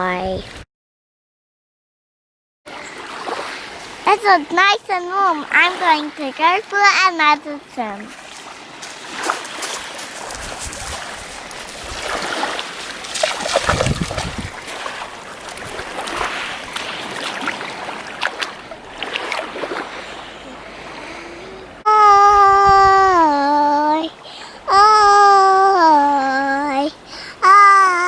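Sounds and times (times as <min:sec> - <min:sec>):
ocean surf splashing: 0:02.7 - 0:28.0
wind buffeting microphone: 0:09.0 - 0:18.1, 0:21.6 - 0:23.3
child wailing: 0:21.2 - 0:24.1, 0:24.7 - 0:28.0.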